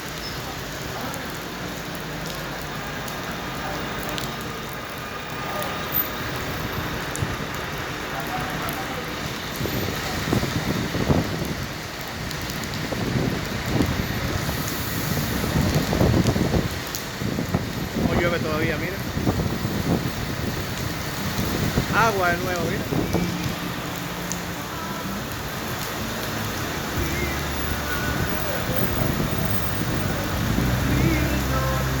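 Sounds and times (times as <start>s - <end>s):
rain falling on street: 0.0s - 32.0s
indistinct voices: 21.8s - 32.0s.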